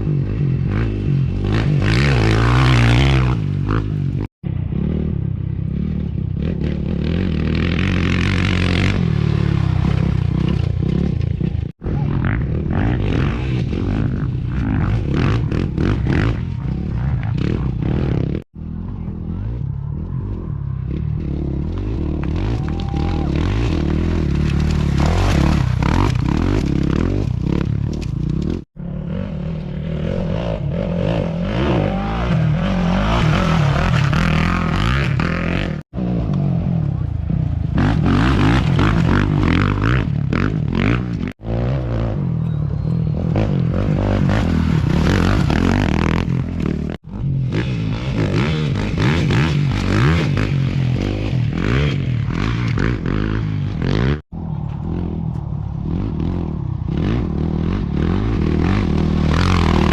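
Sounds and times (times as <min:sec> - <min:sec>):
motorcycles revving past: 0:19.4 - 0:59.9.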